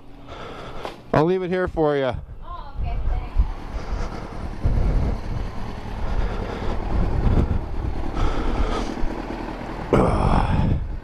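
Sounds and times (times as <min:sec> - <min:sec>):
motorcycle engine running: 0:00.1 - 0:11.0
wind buffeting microphone: 0:01.6 - 0:09.4, 0:10.0 - 0:11.0.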